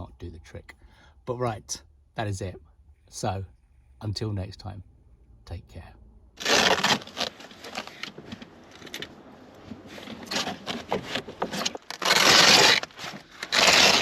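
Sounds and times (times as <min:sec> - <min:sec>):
rustling and scraping handling: 0:06.4 - 0:14.0.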